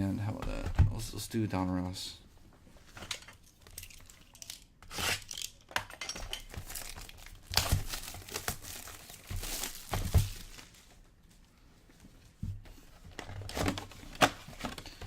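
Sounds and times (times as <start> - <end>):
plastic wrapping torn and crinkled: 3.1 - 10.9.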